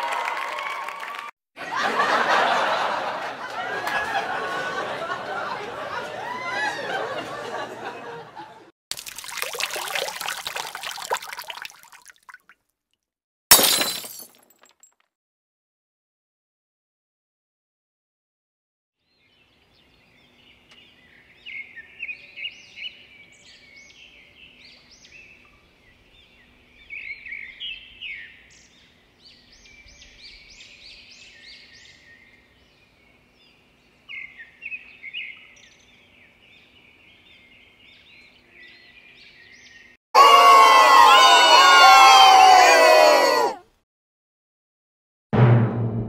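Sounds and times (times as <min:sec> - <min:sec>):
songbirds chirping and singing: 0:19.1 - 0:40.0.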